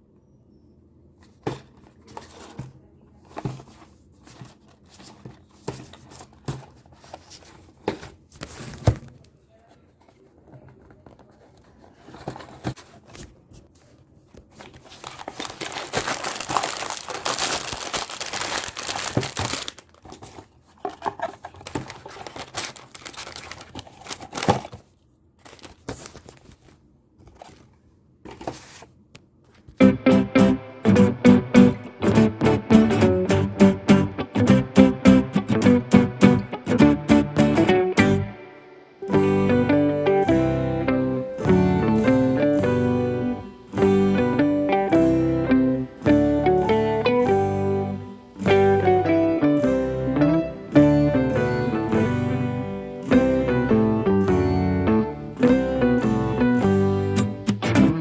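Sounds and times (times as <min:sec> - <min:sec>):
wrapping crinkling and tearing: 0:14.4 - 0:27.7.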